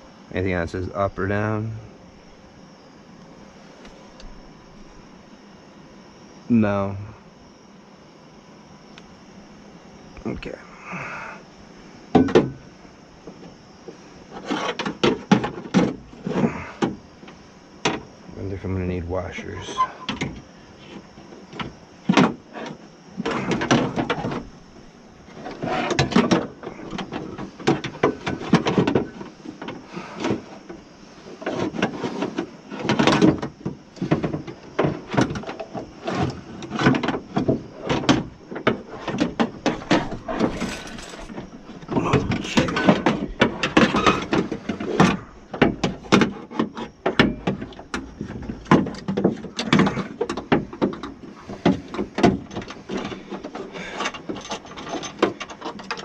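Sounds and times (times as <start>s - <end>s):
metal parts and tools clattering: 39.7s - 44.4s, 53.4s - 56.0s.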